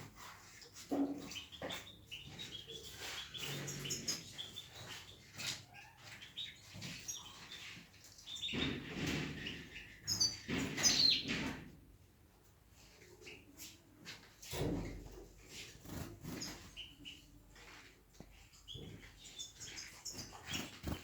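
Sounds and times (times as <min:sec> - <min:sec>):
finches chirping and twittering: 0:01.2 - 0:11.6, 0:15.8 - 0:17.3, 0:18.6 - 0:21.0.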